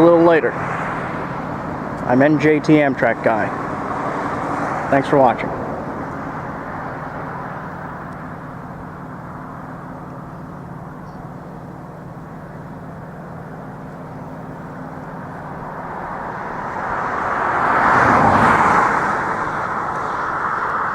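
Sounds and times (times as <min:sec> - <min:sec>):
steady engine hum: 0:00.0 - 0:20.9
vehicle passing close by: 0:00.0 - 0:20.9.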